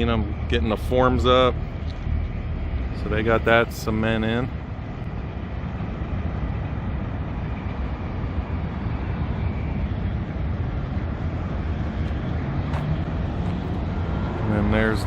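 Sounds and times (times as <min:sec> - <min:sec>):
outdoor machinery: 0:00.0 - 0:15.0
road traffic rumble: 0:00.0 - 0:15.0.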